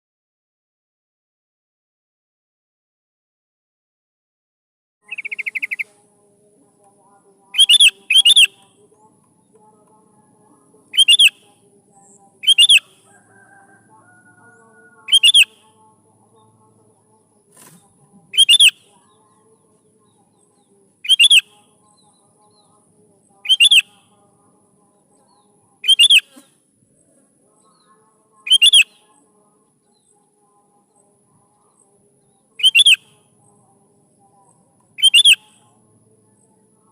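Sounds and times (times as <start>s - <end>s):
bird calling ringing phrase: 7.6s - 8.6s, 10.9s - 11.4s, 12.4s - 15.6s, 21.0s - 21.4s, 23.4s - 23.9s, 28.5s - 28.8s, 35.0s - 35.4s.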